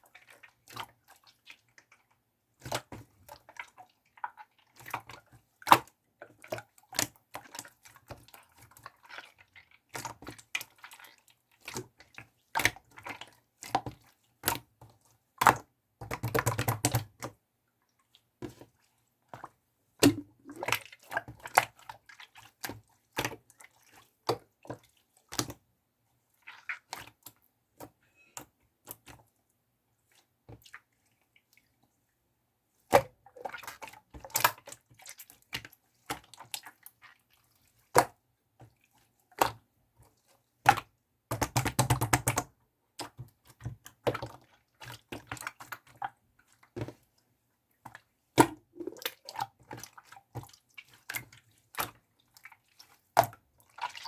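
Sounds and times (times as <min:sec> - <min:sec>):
slime squeezed by hand: 0:48.4 - 0:49.2.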